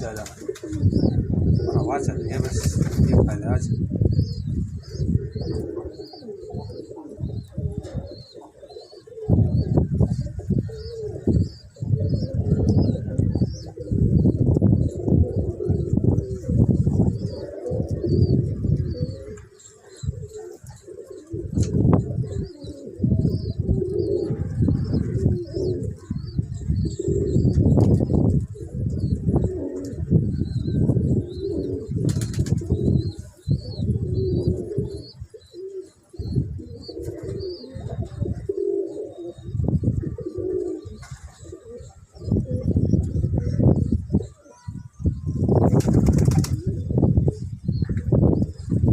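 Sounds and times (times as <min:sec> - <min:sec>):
pigeons cooing: 0:00.0 - 0:48.9
small birds chirping: 0:00.0 - 0:48.9
wind rumbling on microphone: 0:00.0 - 0:48.9
wingbeats: 0:01.7 - 0:03.4, 0:45.6 - 0:46.7.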